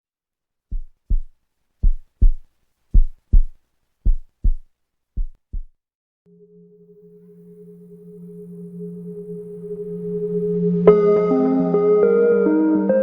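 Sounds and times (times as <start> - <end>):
heartbeat thumps: 0.7 - 5.8.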